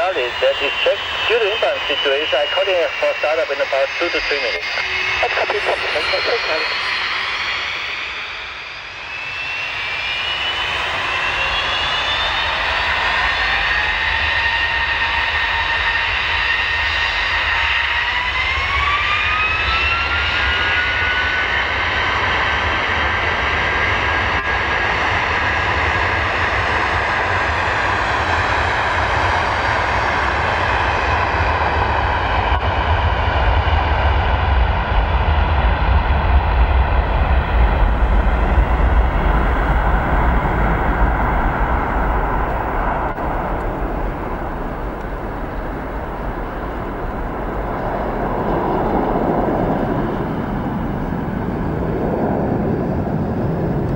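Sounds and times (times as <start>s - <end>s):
jet engine roar: 0.0s - 53.9s
jet engine whine: 0.0s - 53.9s
deep rumble: 33.8s - 53.9s.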